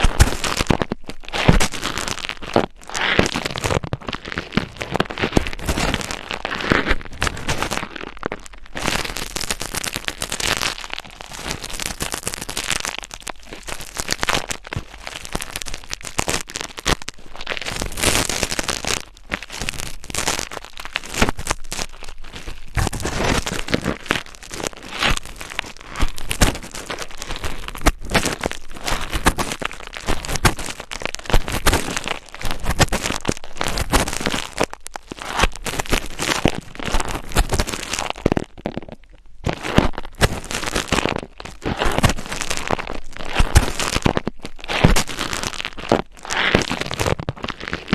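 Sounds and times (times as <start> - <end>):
scratching on microphone: 0.0 - 47.9.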